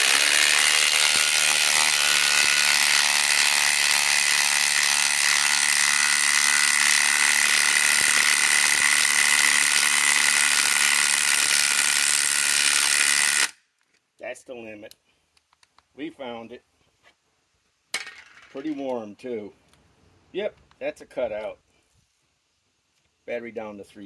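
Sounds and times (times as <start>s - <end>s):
impact driver hammering: 0.0s - 13.5s.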